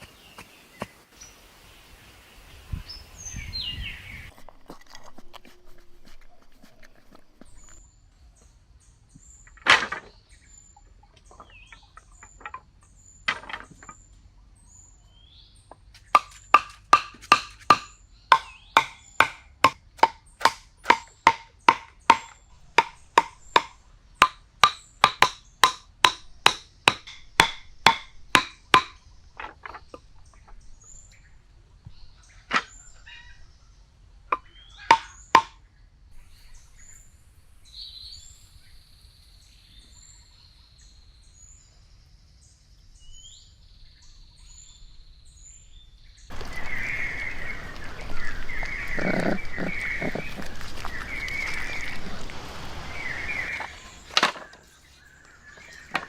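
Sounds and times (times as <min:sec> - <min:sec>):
sharp ringing knocks: 0:16.2 - 0:29.0.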